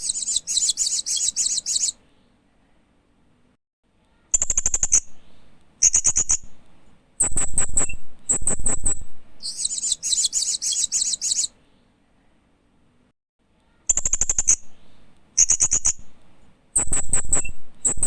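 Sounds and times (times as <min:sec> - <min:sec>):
parrot chirping: 0:00.0 - 0:02.0, 0:07.2 - 0:11.5.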